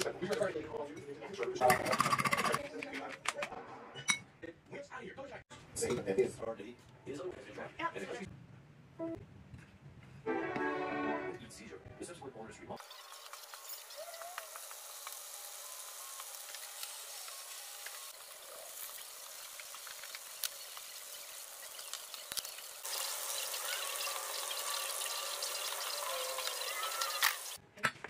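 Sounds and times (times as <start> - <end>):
food deep-frying in oil: 12.8 - 27.6.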